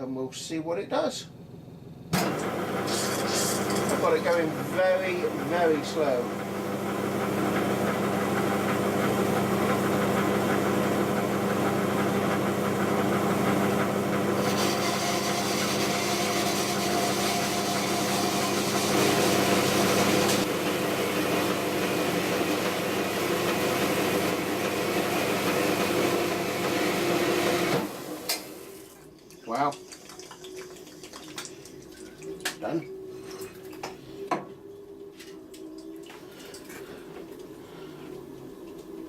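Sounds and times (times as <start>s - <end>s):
bandsaw motor hum: 2.1s - 28.5s.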